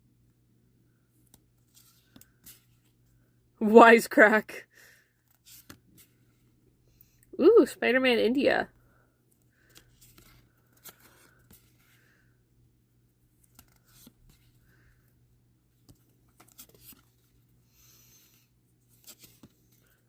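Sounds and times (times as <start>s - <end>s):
trading cards rustling and clicking: 1.2s - 3.1s, 5.2s - 6.6s, 9.3s - 12.2s, 13.2s - 14.9s, 15.7s - 17.5s, 18.2s - 20.0s.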